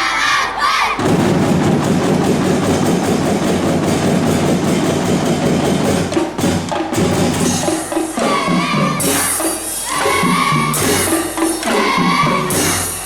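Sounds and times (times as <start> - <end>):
drum band playing: 0.9 - 13.0
wood-block strokes: 2.6 - 13.0.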